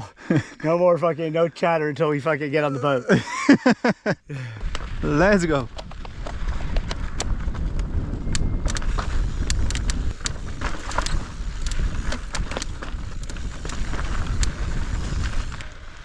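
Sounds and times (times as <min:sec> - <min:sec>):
bike tyres rolling on dirt and stones: 0:05.6 - 0:16.0
bike chain rattling: 0:10.5 - 0:13.6.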